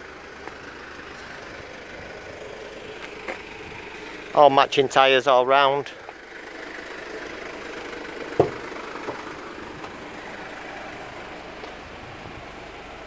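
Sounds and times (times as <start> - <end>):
vehicle engine idling: 0.0 - 13.0
sharp knock: 8.4 - 8.6.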